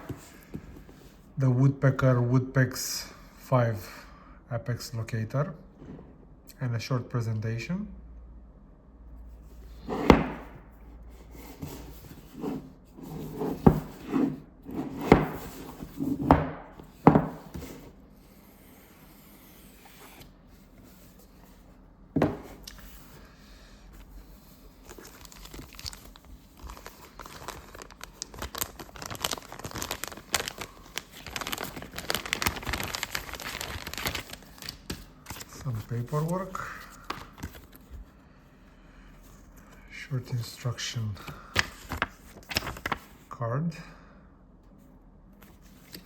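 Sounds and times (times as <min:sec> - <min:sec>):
packaging crinkling and rustling: 0:24.4 - 0:38.1, 0:41.6 - 0:43.2.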